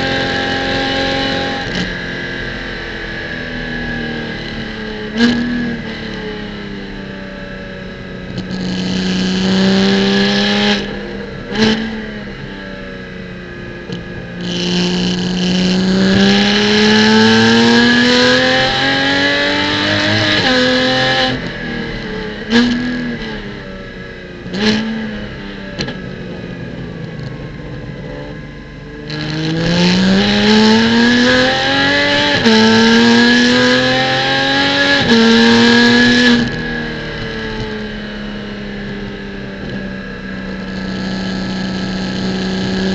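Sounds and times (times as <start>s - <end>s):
race car engine revving: 8.2s - 12.5s, 13.8s - 42.9s.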